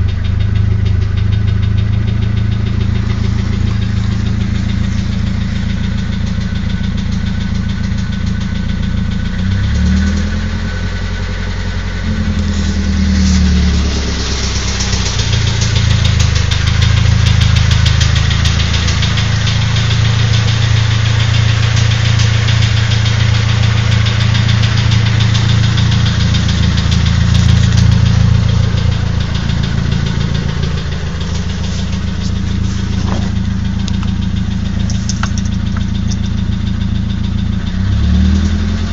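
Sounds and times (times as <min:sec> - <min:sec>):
car engine idling: 0:00.0 - 0:38.9
engine knocking: 0:00.0 - 0:38.9.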